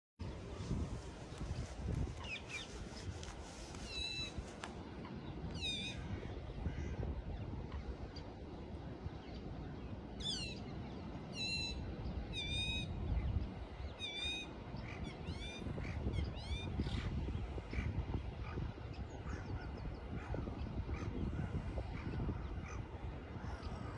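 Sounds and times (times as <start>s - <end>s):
steady low rumble: 0.2s - 13.9s
birds whistling: 11.3s - 14.5s.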